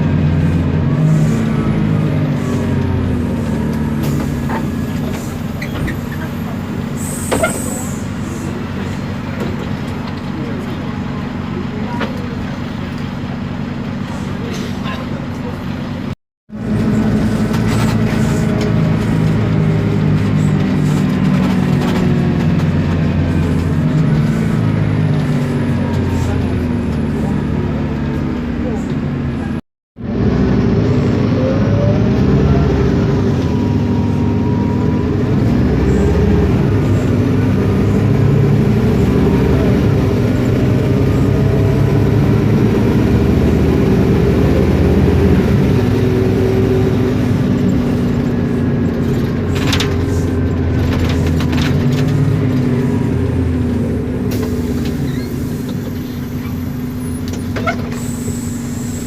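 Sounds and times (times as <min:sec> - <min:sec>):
bus diesel engine running: 0:00.0 - 0:59.0
gearbox and differential whining: 0:16.5 - 0:59.0.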